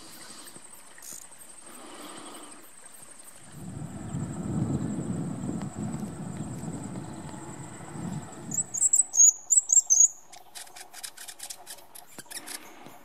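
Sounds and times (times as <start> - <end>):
flowing stream water: 0.0 - 13.0
small bird chirping: 7.0 - 13.0.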